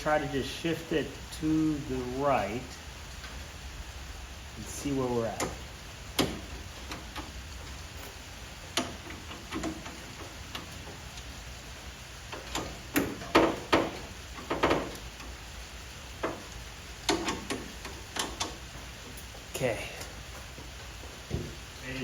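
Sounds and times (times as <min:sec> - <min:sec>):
metal bracket knocking: 0:05.4 - 0:11.0, 0:12.3 - 0:15.2, 0:16.2 - 0:18.8
hand tool clicks and knocks: 0:08.7 - 0:10.8, 0:17.0 - 0:18.6.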